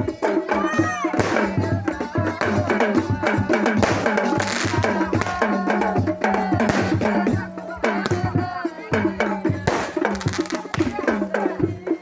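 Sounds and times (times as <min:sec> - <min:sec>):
hand drums beaten fast: 0:00.0 - 0:12.0.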